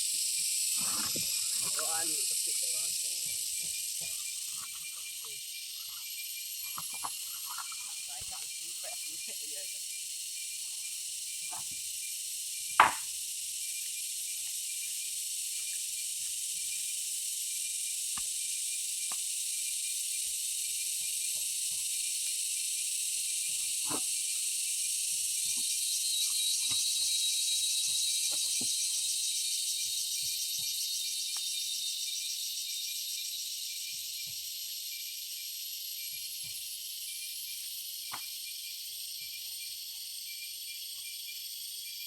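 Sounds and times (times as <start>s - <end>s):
insects chorus trilling: 0.0s - 42.0s
sharp knock: 12.8s - 13.1s.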